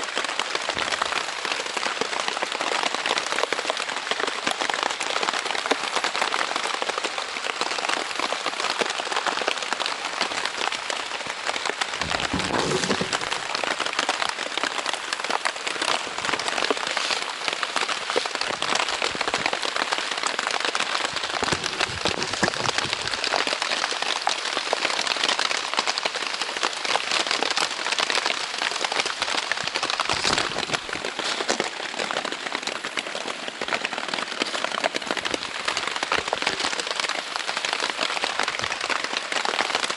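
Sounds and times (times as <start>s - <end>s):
heavy rain on tent fabric: 0.0s - 39.9s.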